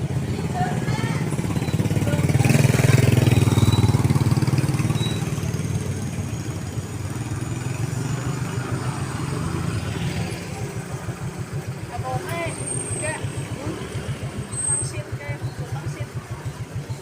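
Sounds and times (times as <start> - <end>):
small motorcycle engine puttering: 1.2 - 7.6.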